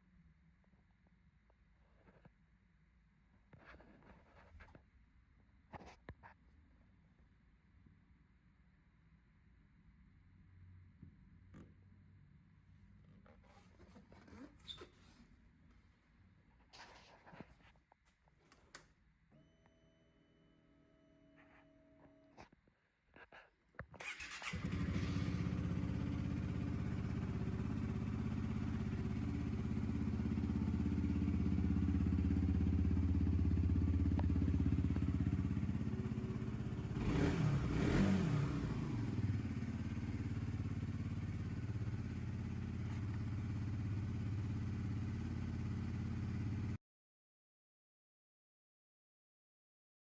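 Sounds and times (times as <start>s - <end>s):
motorcycle engine revving: 24.0s - 46.8s
motorcycle engine starting and idling: 24.0s - 46.8s.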